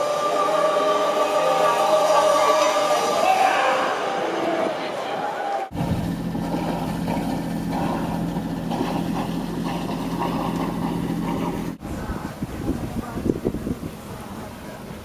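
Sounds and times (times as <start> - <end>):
wind: 0.0 - 15.0
water: 5.0 - 15.0
engine running: 5.7 - 11.8.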